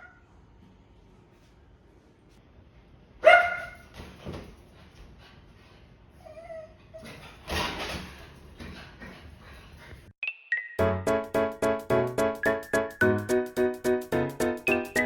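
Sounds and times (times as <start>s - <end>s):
dog barking and yelping: 3.2s - 3.8s
dog whining: 6.2s - 7.2s.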